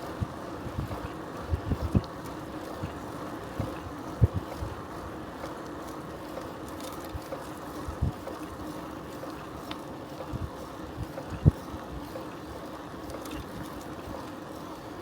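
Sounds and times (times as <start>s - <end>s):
bicycle tyre and wind noise: 0.0s - 15.0s.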